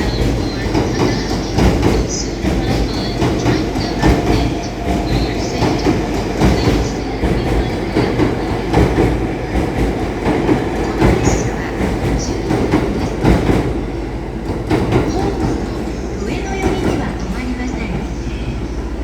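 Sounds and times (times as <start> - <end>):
train wheels clacking over rail joints: 0.0 - 18.0
train rumble: 0.0 - 19.0.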